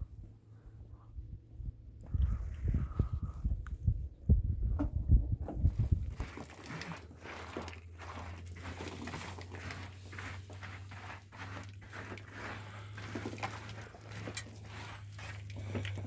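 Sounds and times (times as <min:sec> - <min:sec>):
rustling and scraping: 0:04.8 - 0:16.0.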